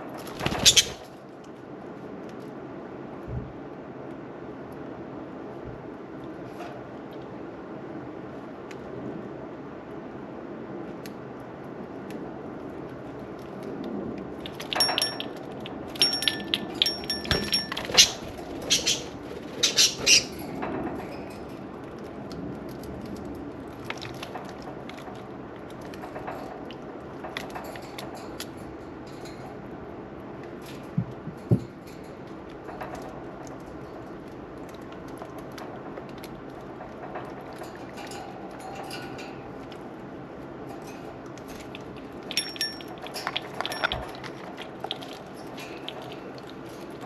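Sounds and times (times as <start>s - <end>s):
budgerigars chirping: 0.6s - 1.0s, 18.0s - 20.3s
faint clicks and splashes: 21.8s - 28.6s, 40.7s - 47.0s
water fountain trickling: 41.4s - 47.0s.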